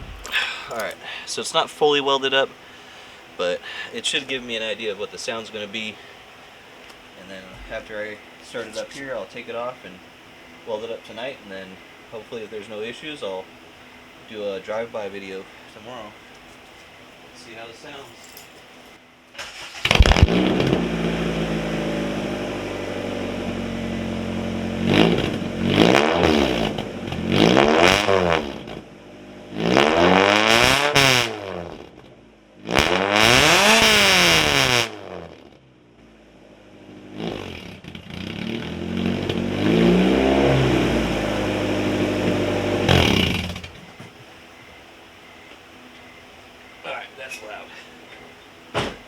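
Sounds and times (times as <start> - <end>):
car engine idling and revving: 19.5 - 45.1.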